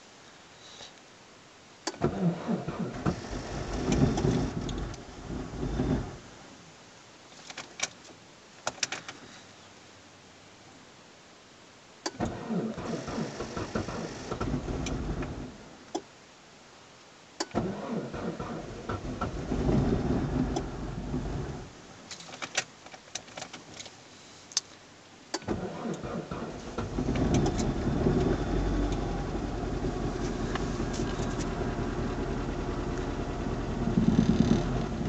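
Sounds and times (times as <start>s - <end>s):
car engine starting and idling: 1.8s - 6.4s, 12.0s - 16.0s, 17.4s - 23.9s, 25.3s - 35.0s
engine popping: 29.7s - 35.0s.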